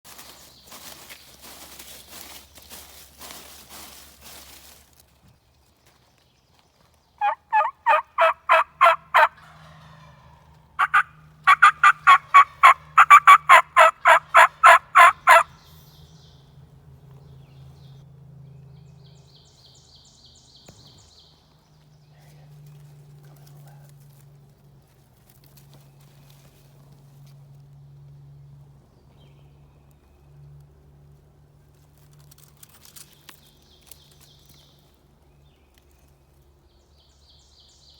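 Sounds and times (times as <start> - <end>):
turkey yelping: 7.2 - 9.4, 10.8 - 15.4.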